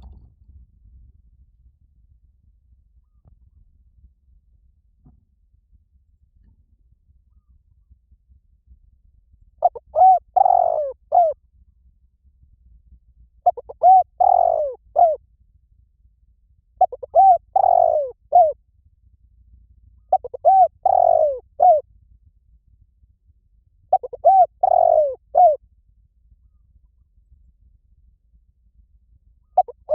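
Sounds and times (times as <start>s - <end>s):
dove cooing: 9.6s - 11.4s, 13.4s - 15.2s, 16.8s - 18.6s, 20.1s - 21.8s, 23.9s - 25.6s, 29.5s - 29.9s.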